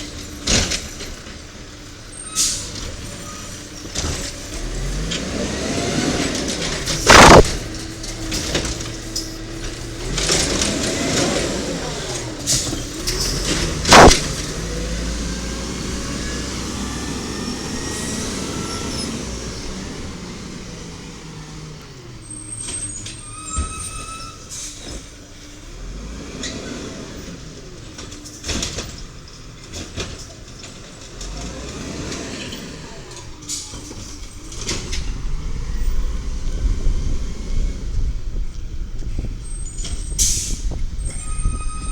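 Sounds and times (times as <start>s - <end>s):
garbage truck engine and hydraulics: 0.0s - 41.9s
loud bang: 7.0s - 7.8s, 13.9s - 14.6s
brief high whine: 7.1s - 7.6s, 13.9s - 14.3s.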